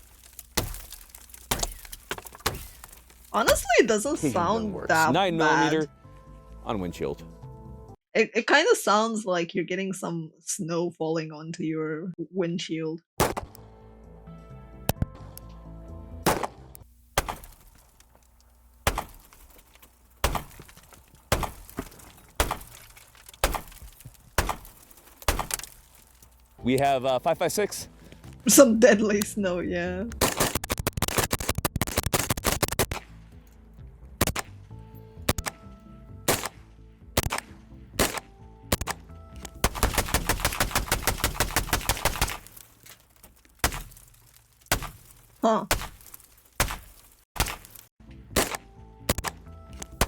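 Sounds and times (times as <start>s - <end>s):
bullets hitting a windshield: 0.3s - 3.6s, 18.9s - 26.3s, 38.0s - 43.0s, 43.6s - 47.8s.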